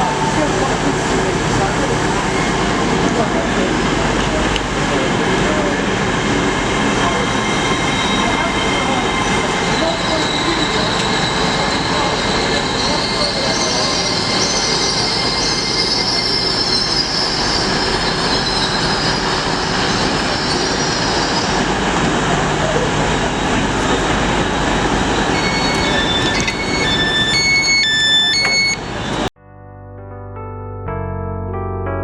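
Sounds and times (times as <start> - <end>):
train running: 0.0 - 29.3
high wheel squeal: 6.9 - 21.7, 25.2 - 29.3
electric piano music: 27.8 - 32.0.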